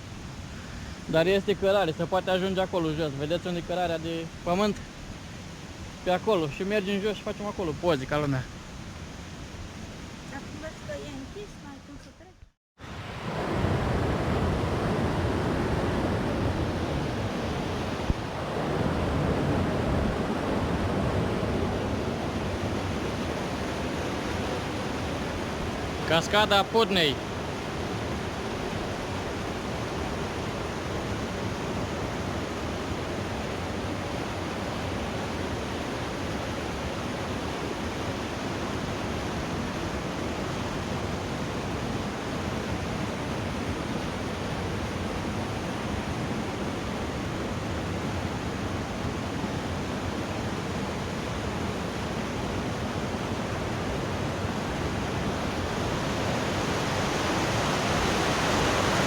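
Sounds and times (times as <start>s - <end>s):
waterfall rushing: 12.9s - 43.5s, 51.4s - 59.0s.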